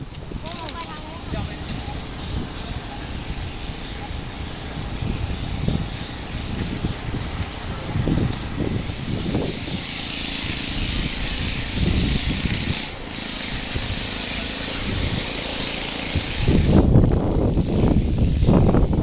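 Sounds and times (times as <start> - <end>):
loud hiss: 8.6 - 16.9.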